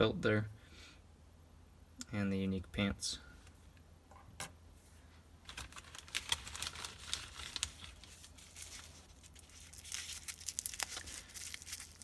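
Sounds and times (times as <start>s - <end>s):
packaging crinkling and tearing: 5.5s - 12.0s.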